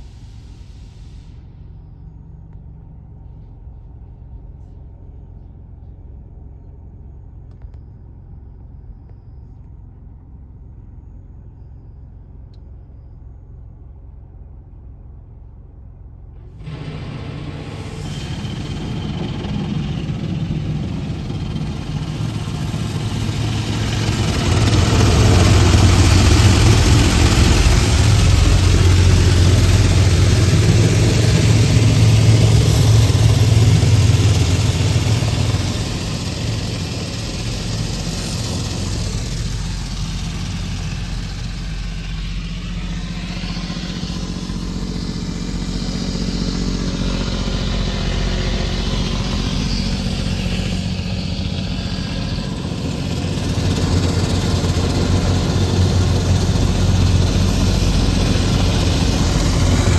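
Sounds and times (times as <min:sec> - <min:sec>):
machinery humming: 0:16.4 - 0:59.9.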